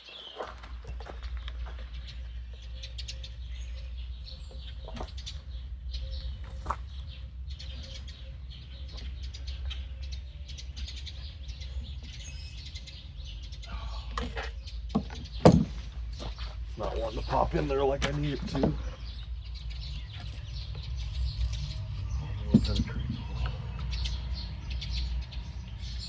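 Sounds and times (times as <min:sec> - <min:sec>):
birds chirping: 0:00.0 - 0:26.0
sharp knock: 0:15.0 - 0:15.8.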